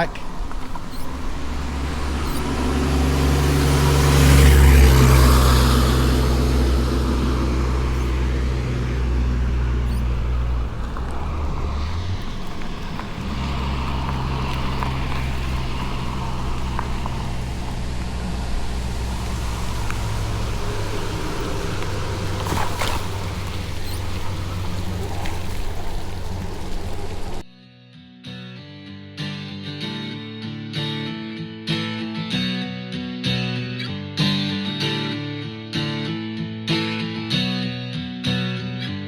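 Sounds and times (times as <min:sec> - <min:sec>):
car passing close by: 0:00.0 - 0:27.4
low engine hum: 0:00.0 - 0:27.4.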